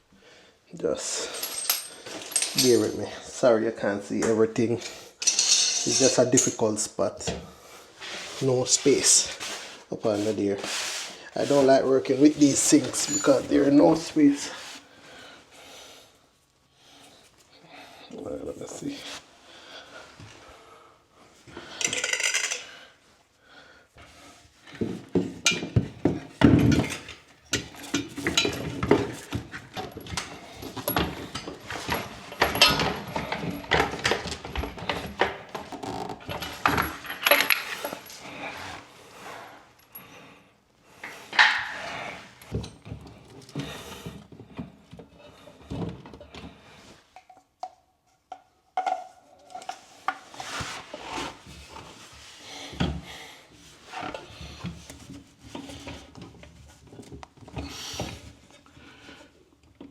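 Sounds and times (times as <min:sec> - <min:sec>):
metal tools clinking and scraping: 0:01.0 - 0:03.4, 0:05.2 - 0:06.9, 0:11.3 - 0:14.5, 0:21.7 - 0:22.7, 0:25.4 - 0:38.8, 0:41.0 - 0:43.6.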